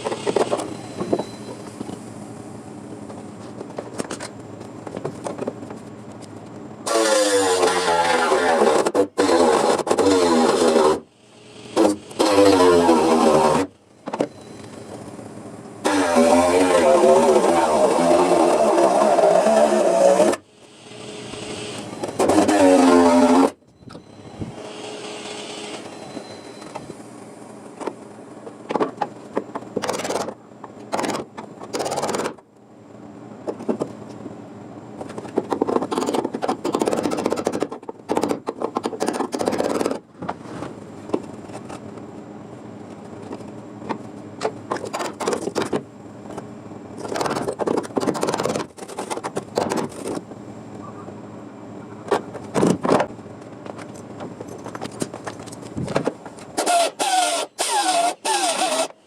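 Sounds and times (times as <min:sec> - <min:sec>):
metal scraping on car body: 0:06.9 - 0:11.1, 0:21.9 - 0:23.6.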